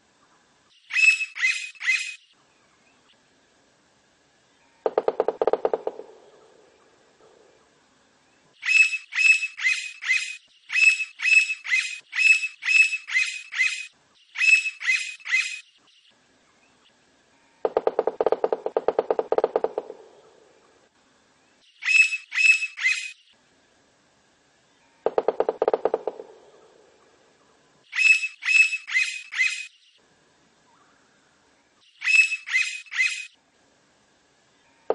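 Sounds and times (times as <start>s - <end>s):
woodpecker calling sharp high notes: 0.9s - 2.2s, 8.6s - 15.7s, 21.8s - 23.2s, 27.9s - 29.8s, 32.0s - 33.4s.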